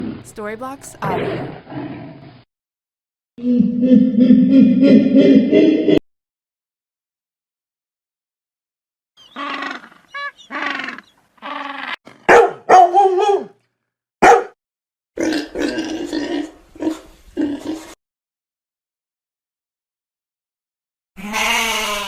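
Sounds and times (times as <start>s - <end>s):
animal barks and grunts: 1.0s - 2.0s, 9.3s - 13.6s, 14.2s - 14.6s.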